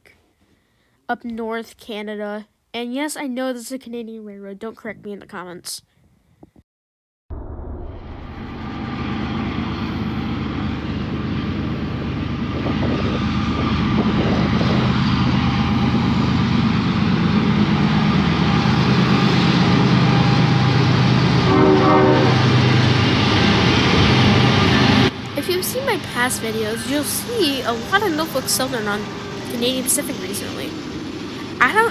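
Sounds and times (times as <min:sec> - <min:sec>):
diesel locomotive engine drone: 0:07.4 - 0:31.9.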